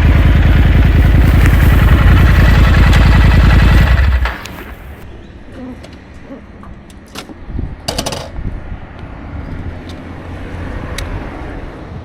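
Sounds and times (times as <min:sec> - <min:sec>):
motorcycle engine idling: 0:00.0 - 0:05.0.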